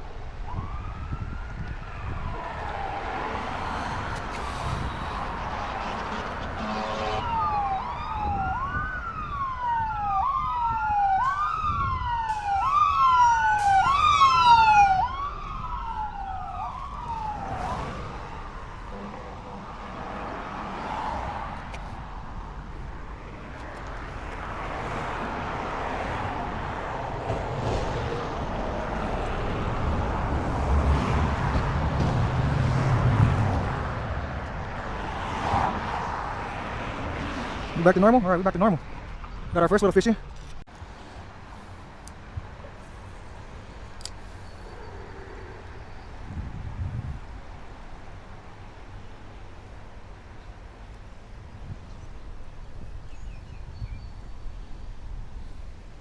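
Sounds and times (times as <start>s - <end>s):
emergency vehicle siren: 0.0s - 37.2s
street noise: 0.0s - 56.0s.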